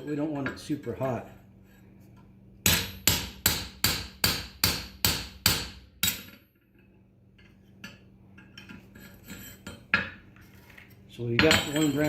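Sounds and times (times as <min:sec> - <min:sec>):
hammer ringing on anvil: 0:02.6 - 0:06.4, 0:11.4 - 0:12.0.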